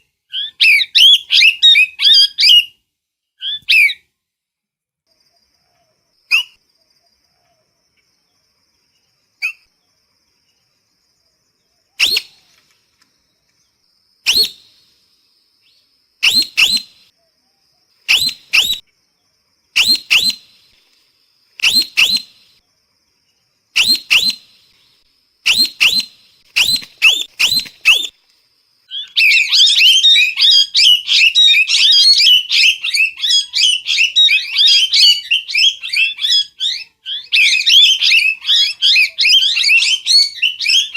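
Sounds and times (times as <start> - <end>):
parrot calling: 18.1 - 18.8, 28.9 - 40.9.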